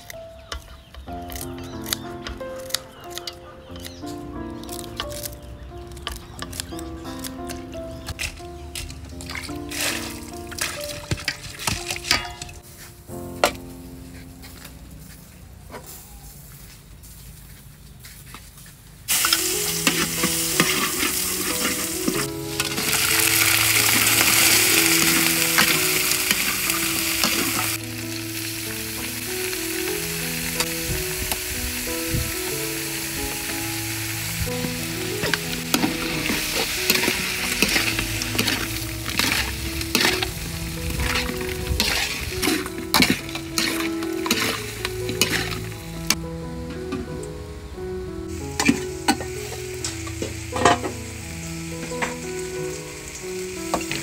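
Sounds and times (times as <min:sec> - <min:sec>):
seafood sizzling in wok: 0:01.2 - 0:13.7, 0:19.1 - 0:46.2, 0:48.2 - 0:54.0
metal spatula clicking and scraping: 0:19.2 - 0:22.9, 0:35.2 - 0:40.3, 0:41.0 - 0:45.7.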